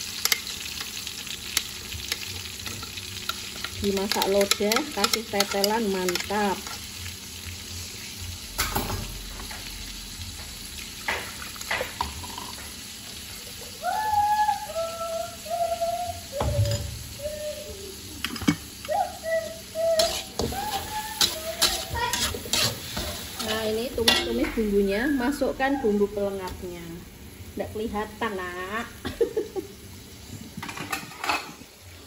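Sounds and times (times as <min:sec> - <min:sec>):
paste sizzling in hot oil: 0:00.0 - 0:14.3, 0:16.3 - 0:30.8
metal spatula scraping wok: 0:20.0 - 0:24.6.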